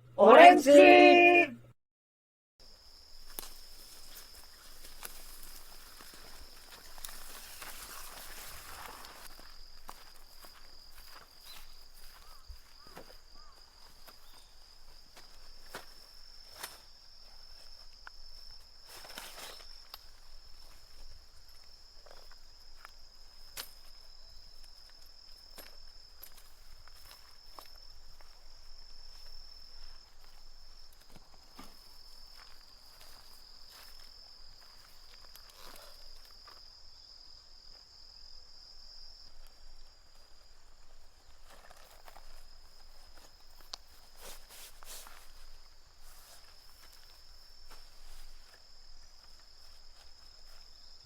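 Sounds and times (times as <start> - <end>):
insect trilling: 10.4 - 14.7.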